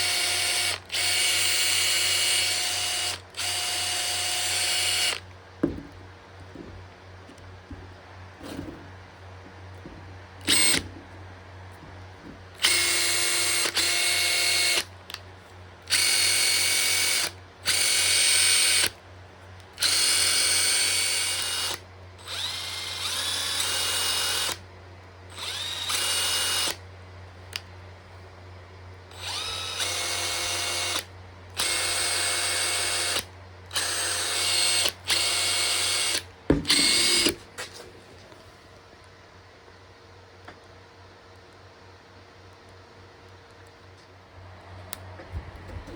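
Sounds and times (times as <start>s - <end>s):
impact driver motor whine: 0.0s - 6.8s, 9.8s - 10.9s, 12.2s - 14.9s, 15.9s - 18.9s, 29.1s - 37.8s.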